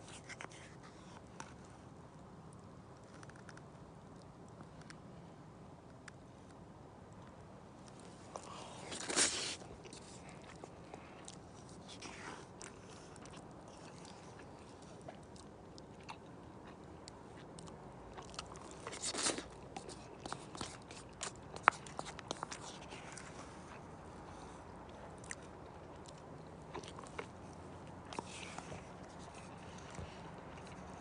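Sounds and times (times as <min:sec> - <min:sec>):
chewing sounds: 0:07.8 - 0:31.0
crunching bites: 0:17.5 - 0:23.3.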